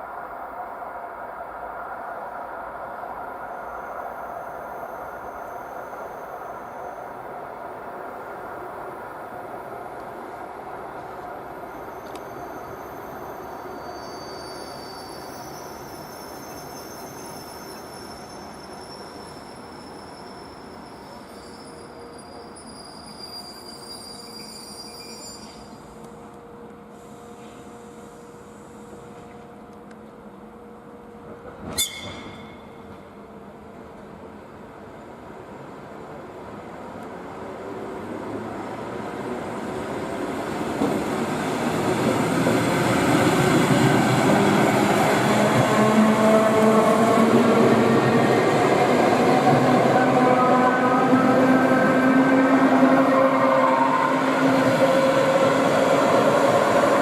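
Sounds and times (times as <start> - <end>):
train wheels on rails: 9.9 - 30.2, 36.9 - 57.0
train rail rumble: 40.2 - 57.0.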